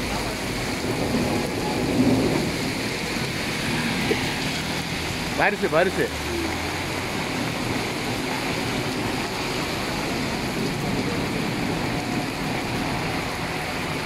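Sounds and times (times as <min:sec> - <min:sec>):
heavy rain on pavement: 0:00.0 - 0:14.0.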